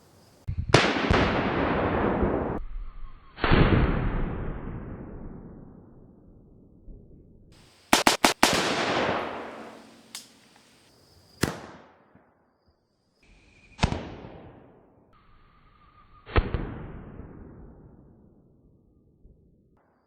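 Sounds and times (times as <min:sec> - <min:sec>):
rifle shots: 0:07.8 - 0:10.8.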